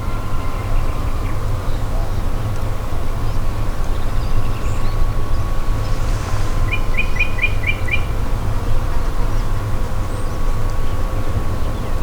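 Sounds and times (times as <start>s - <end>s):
steady low rumble with hum: 3.0s - 10.9s.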